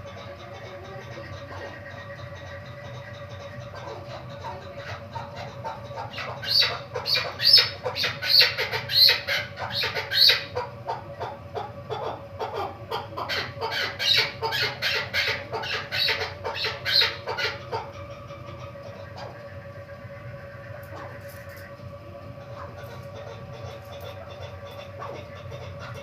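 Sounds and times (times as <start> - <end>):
partridge calling: 0.1 - 11.3, 11.9 - 18.0.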